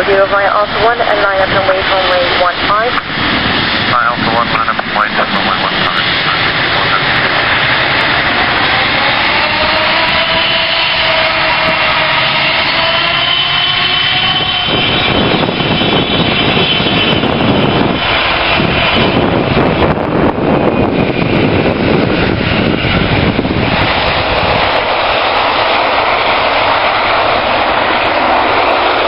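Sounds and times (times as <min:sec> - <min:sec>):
airliner engines whining: 0:00.0 - 0:29.0.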